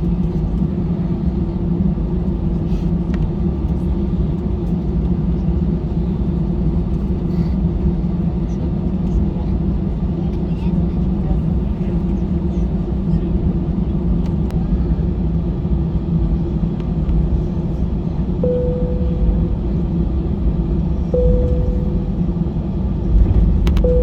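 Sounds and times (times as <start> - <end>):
jet engines low rumble: 0.0 - 24.0
short cabin tone: 18.4 - 20.0, 21.1 - 24.0.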